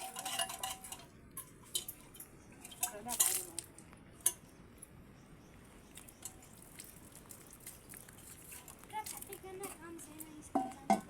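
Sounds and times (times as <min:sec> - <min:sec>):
kitchenware clinking and knocking: 0:00.0 - 0:03.4, 0:10.5 - 0:11.0.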